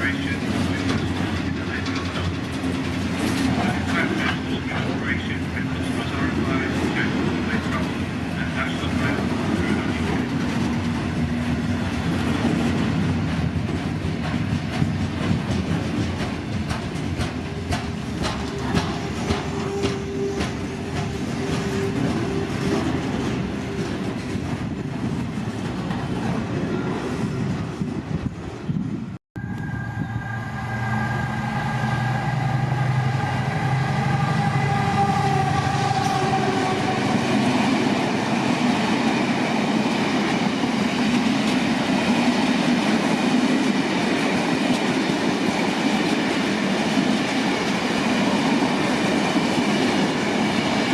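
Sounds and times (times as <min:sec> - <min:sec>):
train passing with steady drone: 0:00.0 - 0:50.9
train wheels clicking over rail joints: 0:00.1 - 0:05.4, 0:08.6 - 0:26.6.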